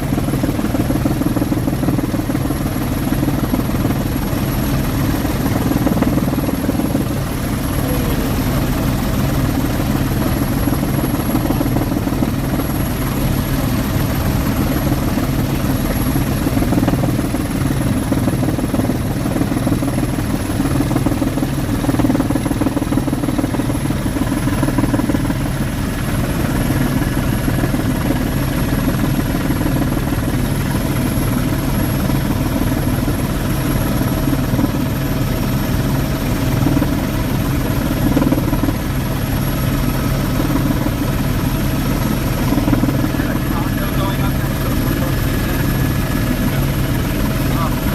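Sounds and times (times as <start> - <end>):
helicopter rotor and engine: 0.0 - 47.9.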